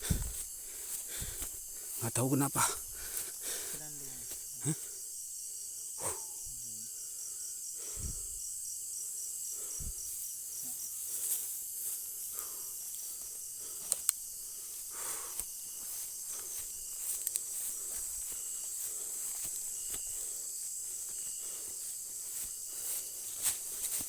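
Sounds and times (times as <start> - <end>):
soft low thuds: 0.0 - 0.5
insect pulsing rapidly: 0.0 - 5.1, 9.5 - 24.0
crickets trilling: 0.0 - 24.0.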